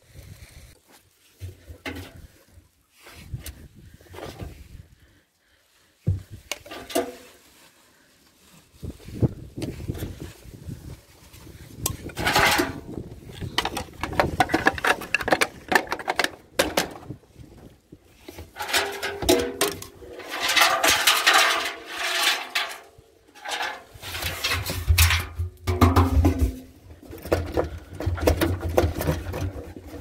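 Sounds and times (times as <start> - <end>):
metallic clattering and clanking: 18.5 - 30.0.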